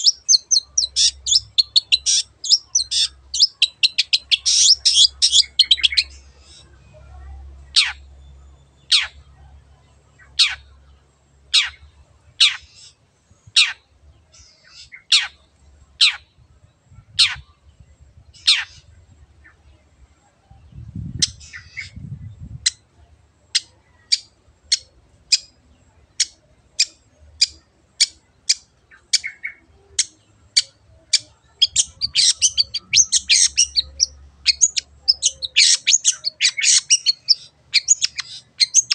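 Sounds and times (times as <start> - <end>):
harsh rapid bird chatter: 0.0 - 6.8, 23.5 - 38.9.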